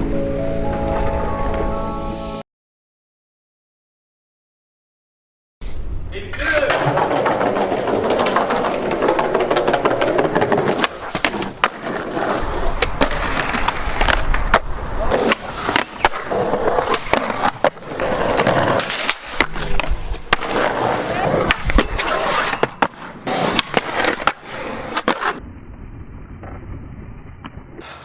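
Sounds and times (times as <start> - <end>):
skateboard wheels rolling on pavement: 5.6 - 28.0
skateboard clacks: 6.3 - 25.4.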